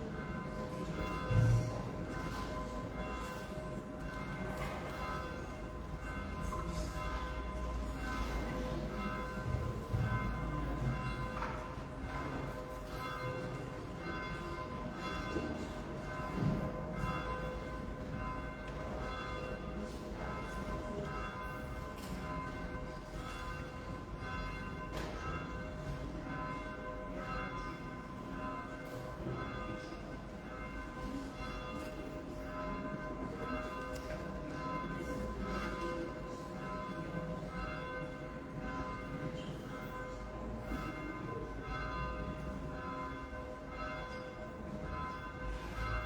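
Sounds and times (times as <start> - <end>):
church bells ringing: 0.0 - 46.0.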